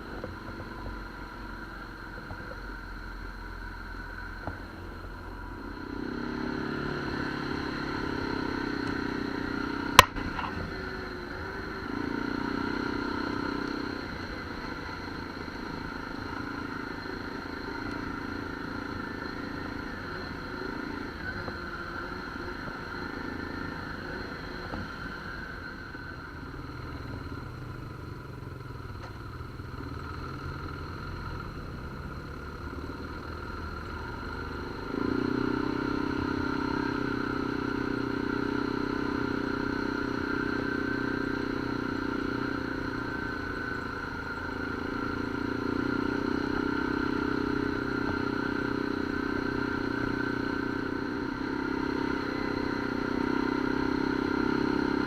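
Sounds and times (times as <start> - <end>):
atv engine running: 0.0 - 55.0
sharp click: 10.0 - 10.6.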